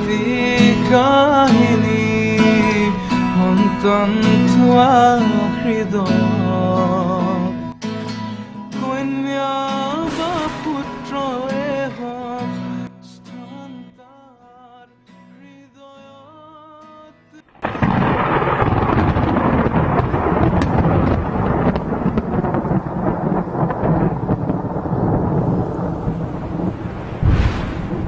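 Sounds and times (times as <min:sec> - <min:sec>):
loud dense rushing rumble: 0:09.9 - 0:12.4, 0:24.3 - 0:28.0.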